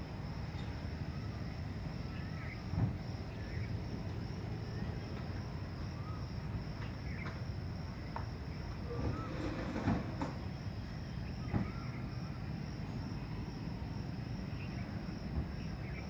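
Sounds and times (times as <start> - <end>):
thump: 2.7 - 3.0, 11.5 - 11.8
faint bird chirps: 11.0 - 12.4.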